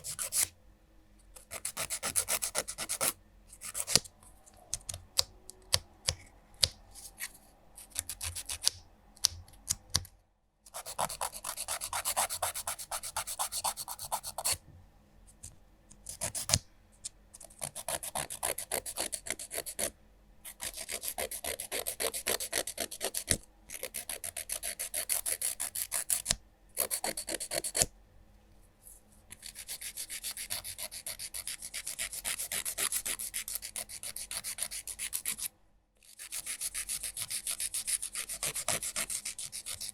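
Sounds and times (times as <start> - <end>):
nail file rasping on fingernails: 0.0 - 0.5, 1.4 - 4.0, 10.7 - 14.6, 17.4 - 19.9, 20.5 - 27.9, 29.3 - 35.5, 36.1 - 39.9.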